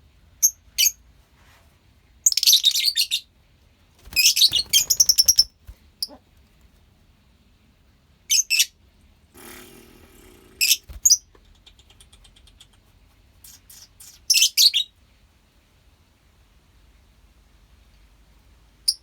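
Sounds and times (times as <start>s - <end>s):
lovebirds chirping: 2.2s - 3.3s, 4.1s - 6.2s, 9.8s - 12.8s, 13.4s - 15.0s
soft rapid bird chattering: 9.4s - 14.9s.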